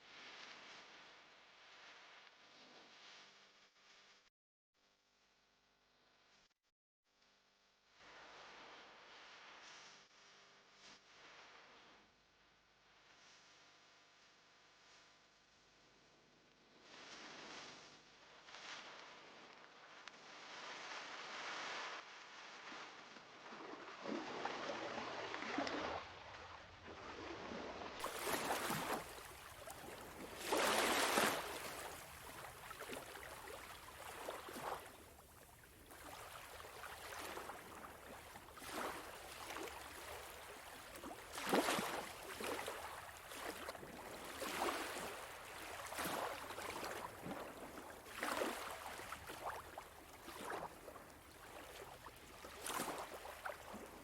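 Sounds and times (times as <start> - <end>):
small waves washing on beach: 20.3 - 54.0.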